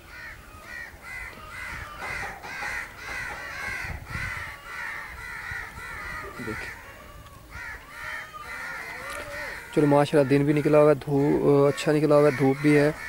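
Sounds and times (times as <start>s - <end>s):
birds calling repeatedly: 0.0s - 13.0s.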